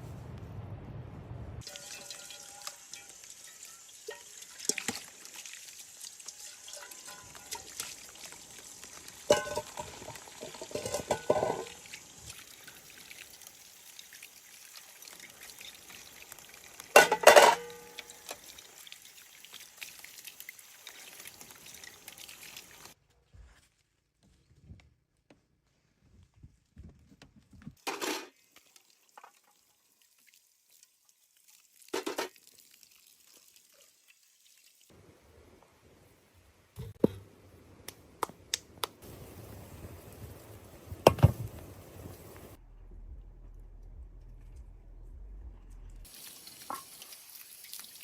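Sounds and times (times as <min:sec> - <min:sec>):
water pouring: 0:01.6 - 0:23.0, 0:27.8 - 0:35.0, 0:46.0 - 0:48.0.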